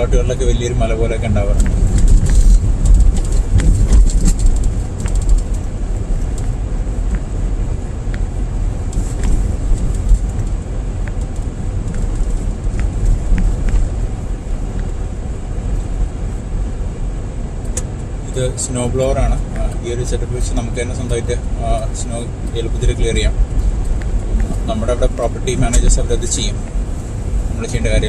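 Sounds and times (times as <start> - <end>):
car engine and tyre rumble: 0.0 - 28.0
faint ticks: 23.5 - 26.8.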